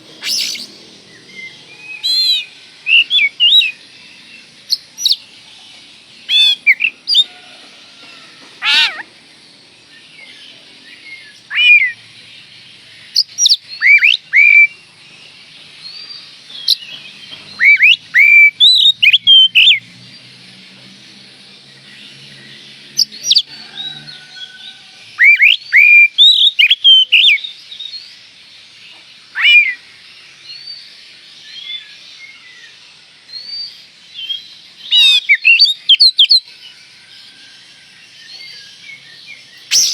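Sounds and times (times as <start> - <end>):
bird singing whistled phrases: 0.2 - 3.8, 6.3 - 7.3, 10.9 - 12.0, 13.2 - 14.8, 17.6 - 19.8, 25.2 - 27.6, 29.3 - 29.8, 33.3 - 36.4, 38.3 - 39.9.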